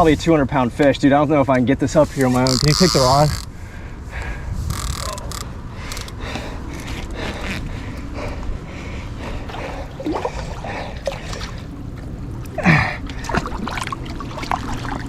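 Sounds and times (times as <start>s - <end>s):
water sloshing and splashing: 9.2s - 15.0s.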